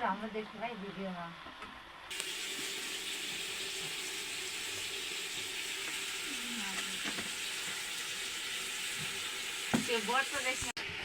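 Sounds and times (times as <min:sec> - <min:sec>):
food sizzling in hot oil: 0:02.1 - 0:10.8.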